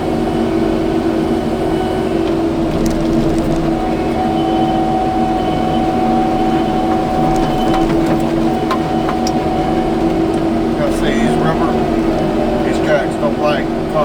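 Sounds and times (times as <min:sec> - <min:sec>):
diesel engine running: 0:00.0 - 0:14.0
steady whine: 0:00.0 - 0:14.0.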